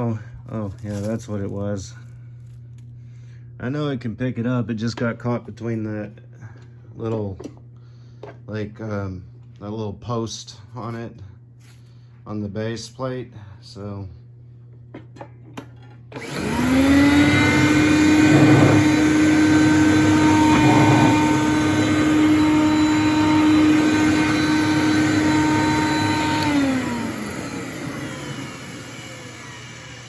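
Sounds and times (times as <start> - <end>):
vacuum cleaner motor: 16.1 - 30.0.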